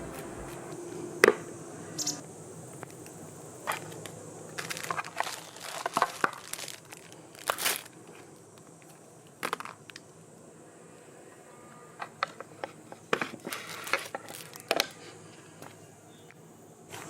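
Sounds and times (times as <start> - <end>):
crunching crinkling handling: 3.7 - 10.0, 13.2 - 15.0.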